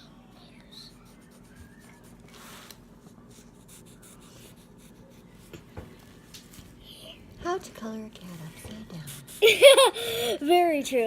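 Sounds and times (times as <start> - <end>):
marker scratching on paper: 0.9 - 5.5.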